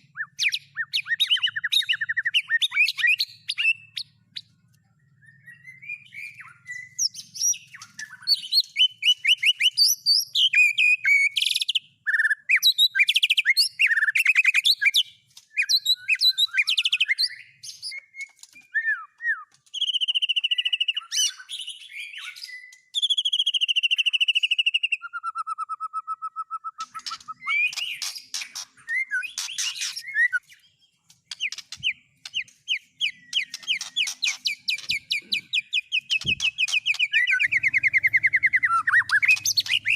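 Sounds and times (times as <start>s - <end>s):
songbird singing trills and whistles: 0.0s - 39.9s
low even bird trill: 31.5s - 39.9s.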